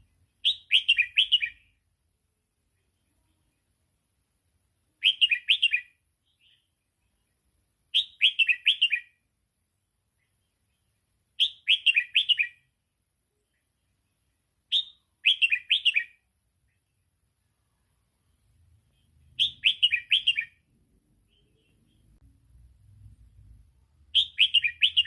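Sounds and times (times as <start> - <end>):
bird singing whistled phrases: 0.4 - 1.7, 5.0 - 6.6, 7.9 - 9.2, 11.4 - 12.7, 14.7 - 16.2, 19.4 - 20.6, 24.1 - 25.0.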